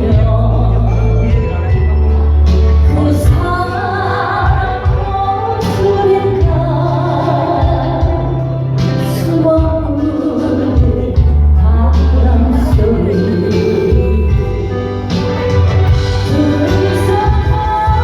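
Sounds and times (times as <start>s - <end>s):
woman singing a slow ballad: 0.0s - 1.8s, 2.7s - 18.0s
instrumental accompaniment: 0.0s - 18.0s
long held bass notes: 9.7s - 18.0s.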